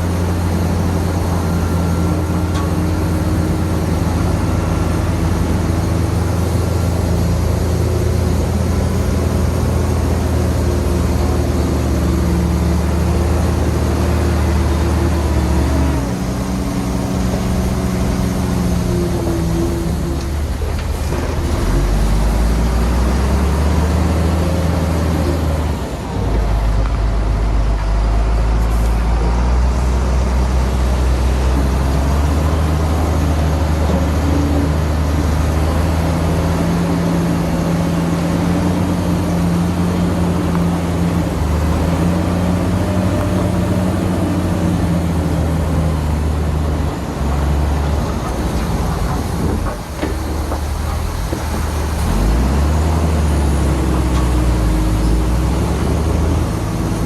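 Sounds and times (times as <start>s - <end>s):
heavy diesel engine: 0.0s - 57.0s.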